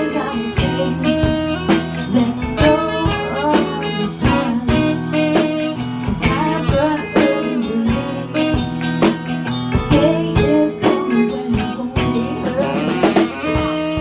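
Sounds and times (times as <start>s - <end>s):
electric guitar chords: 0.0s - 14.0s.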